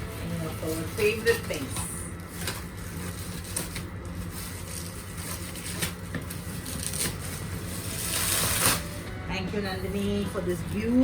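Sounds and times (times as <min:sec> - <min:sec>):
steady low hum: 0:00.0 - 0:11.0
packaging rustling: 0:00.5 - 0:09.1.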